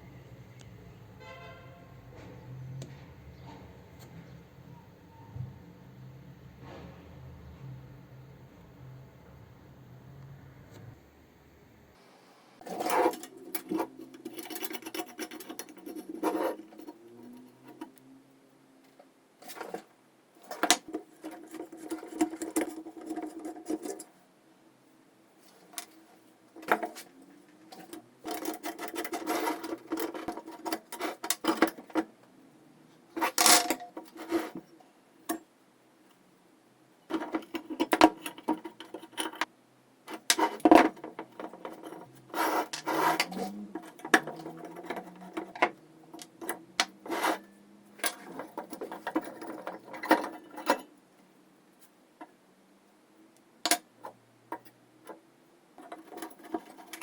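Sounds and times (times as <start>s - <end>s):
metal parts clicking and clinking: 12.6s - 17.9s, 27.7s - 32.1s, 33.2s - 34.6s, 40.1s - 50.9s
scraping and rubbing on metal: 12.6s - 18.0s, 19.4s - 24.2s, 25.4s - 32.2s, 33.0s - 34.9s, 37.1s - 39.5s, 40.1s - 50.9s, 55.8s - 57.0s.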